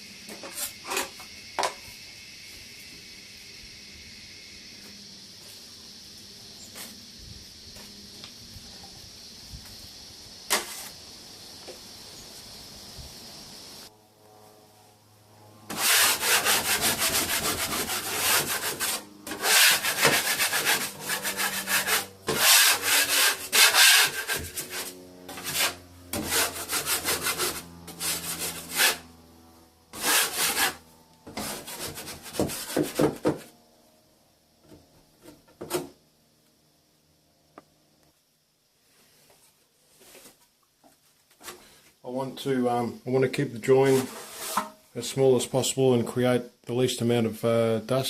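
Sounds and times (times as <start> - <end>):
hand sanding plaster: 15.7 - 29.0, 30.0 - 33.4, 43.8 - 44.7.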